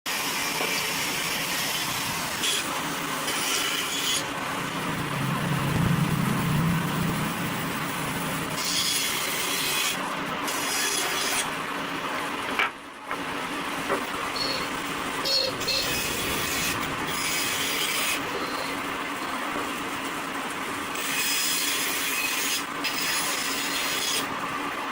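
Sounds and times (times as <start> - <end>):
woodworking tool working wood: 0.1 - 24.4.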